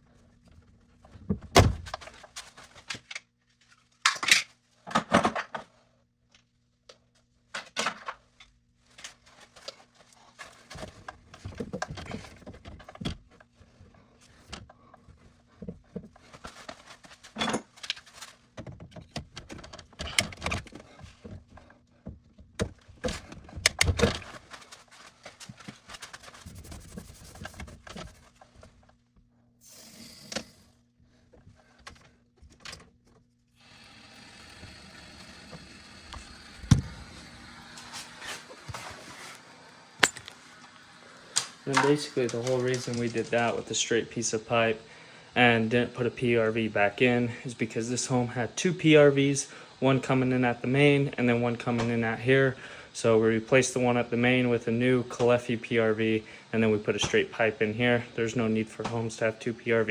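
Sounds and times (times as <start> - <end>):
faint steady hum: 26.4 - 59.9.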